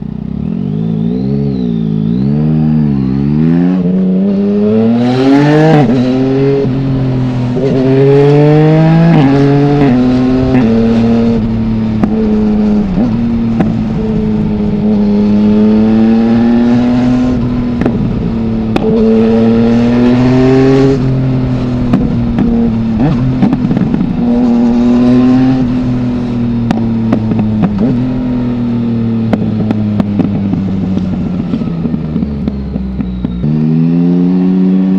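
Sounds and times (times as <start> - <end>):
motorcycle engine revving through gears: 0.0 - 34.9
exhaust crackling and popping: 9.8 - 15.3, 17.2 - 19.5, 20.9 - 24.8, 25.6 - 33.5.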